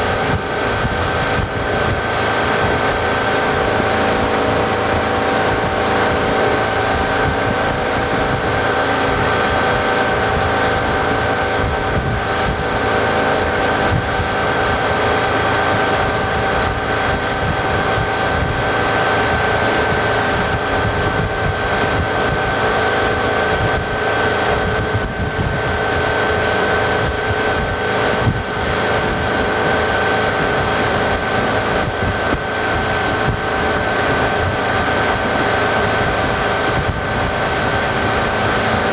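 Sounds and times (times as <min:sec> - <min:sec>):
motorboat engine running: 0:00.0 - 0:38.9
wind buffeting microphone: 0:00.0 - 0:38.9.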